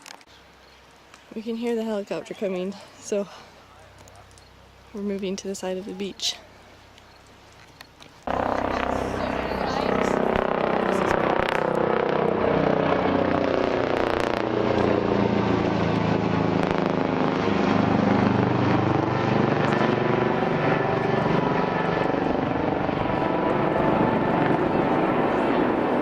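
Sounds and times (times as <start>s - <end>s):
helicopter rotor and engine: 7.0s - 26.0s.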